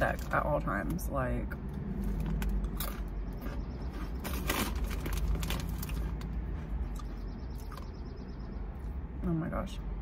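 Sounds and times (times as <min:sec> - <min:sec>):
steady low rumble: 0:00.0 - 0:10.0
chip crunching: 0:01.9 - 0:08.0.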